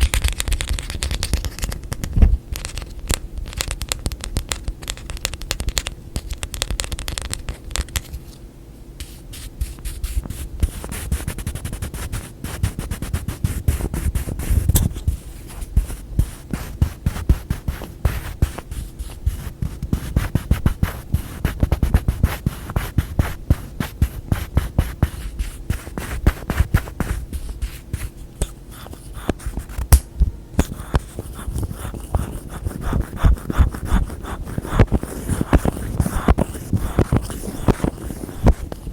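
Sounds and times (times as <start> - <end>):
fingernails tapping and scratching: 30.6 - 38.9.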